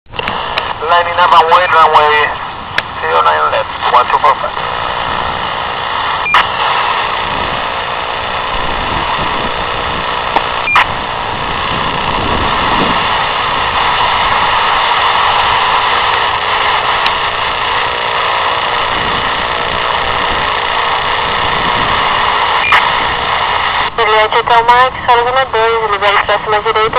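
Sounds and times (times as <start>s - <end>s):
radio transmitter clicks: 0.1s - 11.7s, 12.4s - 24.8s
radio static hiss: 0.1s - 26.9s
brief radio beep: 6.2s - 6.5s, 10.6s - 10.9s, 22.6s - 22.9s.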